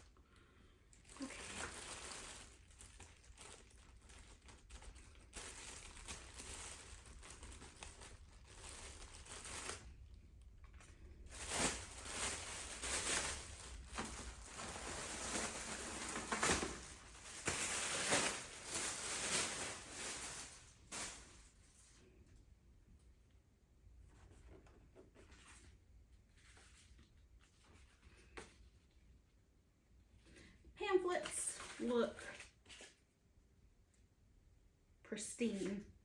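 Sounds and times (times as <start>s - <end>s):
paper and packaging rustling: 0.9s - 22.0s, 31.0s - 33.0s.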